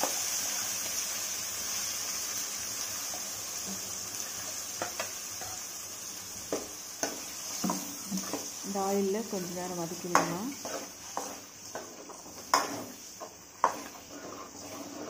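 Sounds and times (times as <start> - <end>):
tomato paste sizzling in oil: 0.0 - 15.0
spoon stirring: 9.9 - 15.0.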